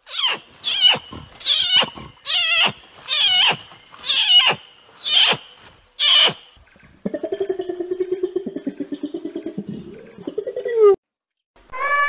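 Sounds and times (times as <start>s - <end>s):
orangutan squealing calls: 0.0s - 6.5s, 11.7s - 12.0s.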